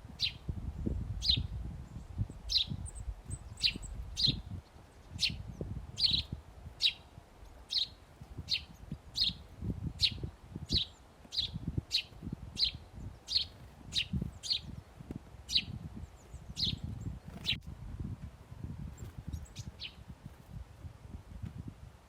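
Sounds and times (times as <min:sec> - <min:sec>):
small bird chirping: 0:00.1 - 0:00.5, 0:01.2 - 0:14.9, 0:15.5 - 0:17.6, 0:18.9 - 0:20.1.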